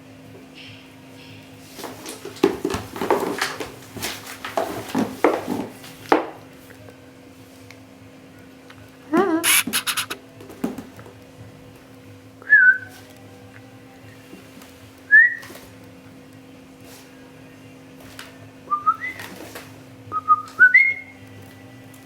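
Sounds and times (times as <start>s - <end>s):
person imitating parrot squawks: 9.2s - 10.2s
warbling whistle: 9.4s - 10.2s.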